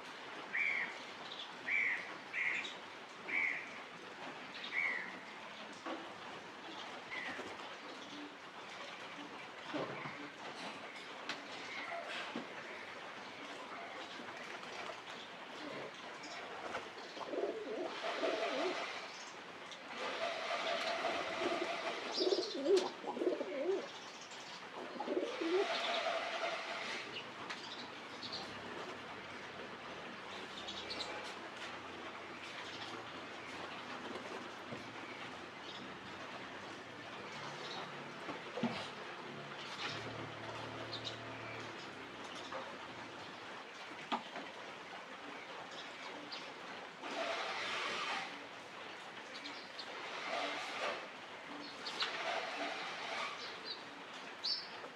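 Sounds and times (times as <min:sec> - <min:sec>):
pigeons cooing: 0:17.2 - 0:19.1, 0:20.0 - 0:23.9, 0:24.8 - 0:26.9.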